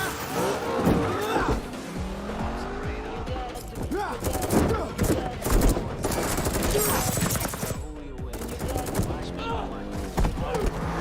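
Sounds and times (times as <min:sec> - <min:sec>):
car chase rumble: 0:00.0 - 0:06.0, 0:09.0 - 0:11.0.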